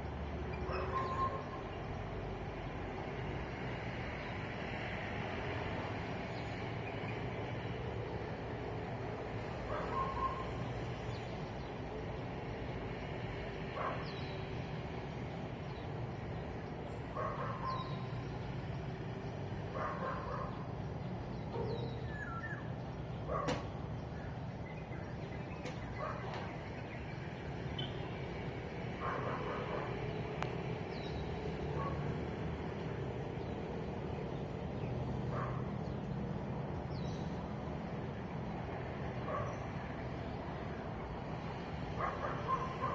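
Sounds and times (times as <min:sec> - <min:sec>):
road traffic hum: 0:00.0 - 0:42.9
dogs barking: 0:00.6 - 0:01.5, 0:09.6 - 0:10.6, 0:13.7 - 0:14.2, 0:17.1 - 0:18.0, 0:19.7 - 0:20.8, 0:21.5 - 0:22.6, 0:23.2 - 0:23.7, 0:25.8 - 0:26.6, 0:28.9 - 0:30.1, 0:31.7 - 0:32.2, 0:35.3 - 0:35.7, 0:39.2 - 0:39.7, 0:41.9 - 0:42.9
bird chirps: 0:21.3 - 0:23.5.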